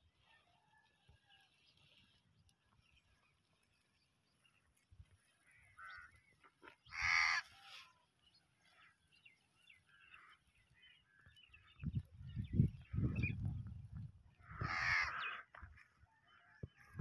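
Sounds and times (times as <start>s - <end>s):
bird calls: 5.2s - 17.0s.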